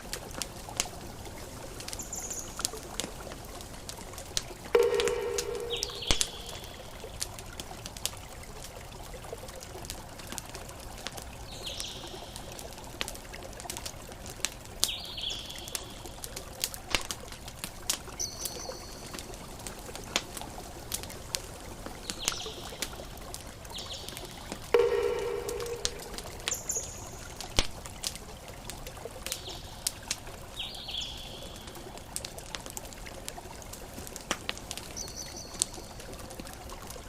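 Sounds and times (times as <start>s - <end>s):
campfire crackling and popping: 0.0s - 37.0s
water flowing: 0.0s - 37.0s
bird chirping: 4.8s - 7.0s, 24.8s - 27.4s.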